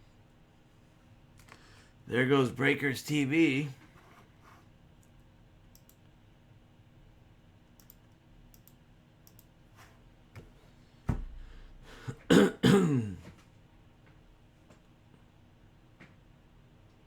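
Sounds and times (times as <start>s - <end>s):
faint clicks: 5.0s - 6.1s, 7.8s - 9.5s
thump: 11.1s - 11.4s
man clearing throat and coughing: 12.0s - 13.4s.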